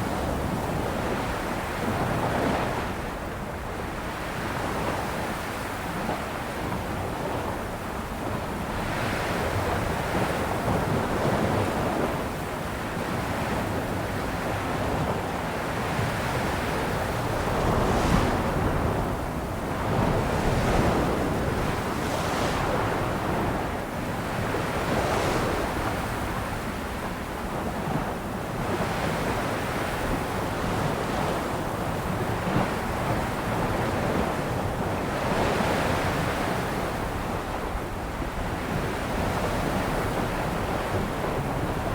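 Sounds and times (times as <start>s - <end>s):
ocean waves breaking on shore: 13.0s - 41.9s
wind on microphone: 13.4s - 41.9s.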